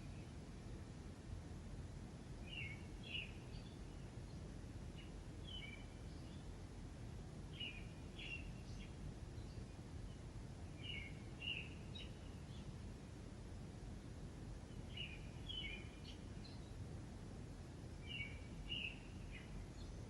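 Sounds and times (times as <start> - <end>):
songbird chirping: 2.3 - 6.6, 7.4 - 13.0, 14.5 - 17.2, 17.8 - 20.0.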